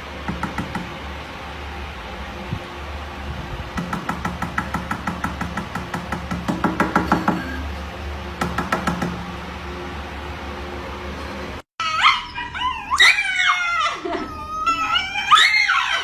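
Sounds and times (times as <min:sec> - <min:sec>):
steady low hum: 0:00.0 - 0:11.7
rapid even knocking: 0:00.2 - 0:01.0, 0:03.7 - 0:07.6, 0:08.4 - 0:09.3.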